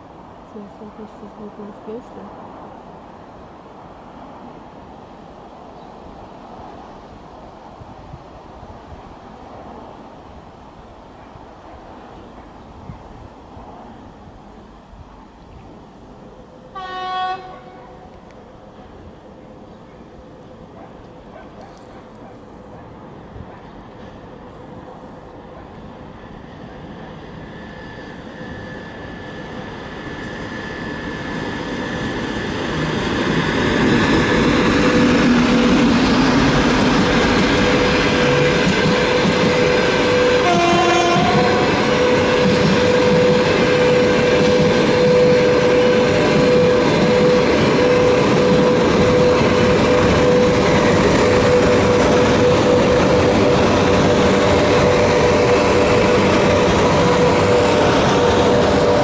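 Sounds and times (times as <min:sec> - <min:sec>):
freight train rolling past: 0:00.0 - 0:59.0
train horn blast: 0:16.7 - 0:18.1, 0:37.2 - 0:59.0.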